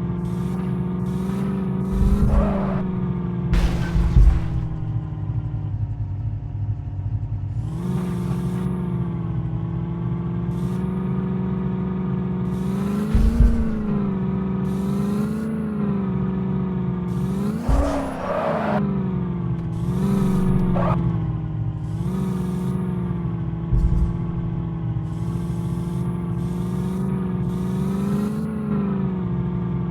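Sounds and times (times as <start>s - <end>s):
motor droning: 0.0s - 5.1s, 10.5s - 16.4s, 17.1s - 18.8s, 19.6s - 29.2s
short knocks: 23.7s - 24.8s.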